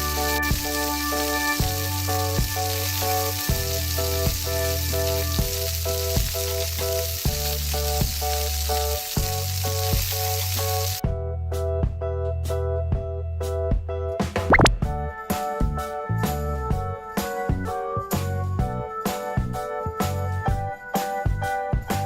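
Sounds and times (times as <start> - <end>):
frying sizzle: 0.0 - 11.0
light rhythmic music with bass beat: 0.0 - 22.0.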